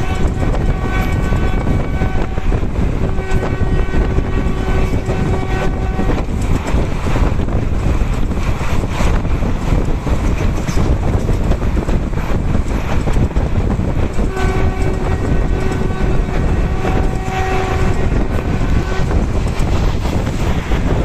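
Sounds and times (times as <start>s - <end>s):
train horn blast: 0.0s - 6.4s, 14.2s - 19.8s
train wheels rumbling on rails: 0.0s - 21.0s
wind on microphone: 0.0s - 21.0s.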